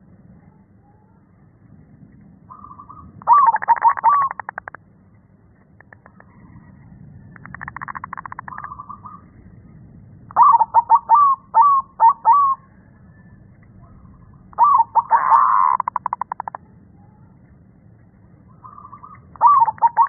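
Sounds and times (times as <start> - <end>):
dove cooing: 2.5 - 4.8, 10.3 - 12.9, 13.8 - 16.6, 18.6 - 20.0.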